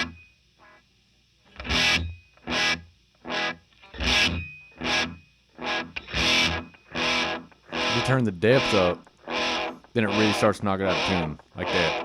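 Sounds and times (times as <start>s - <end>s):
electric guitar chords with warbling delay: 3.3s - 12.0s.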